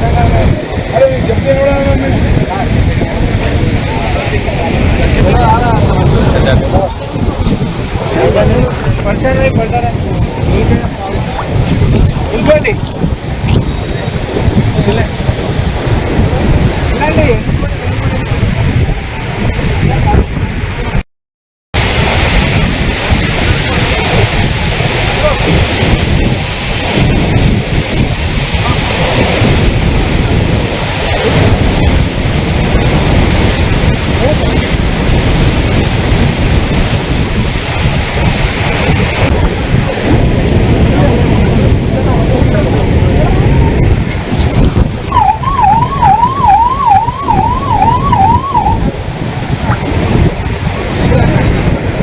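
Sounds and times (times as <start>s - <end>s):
heavy low rumble: 0.0s - 21.0s, 21.8s - 52.0s
rushing flowing water: 0.0s - 21.0s, 21.8s - 52.0s
wind buffeting microphone: 0.0s - 21.0s, 21.8s - 52.0s
emergency vehicle siren warbling: 45.1s - 49.0s.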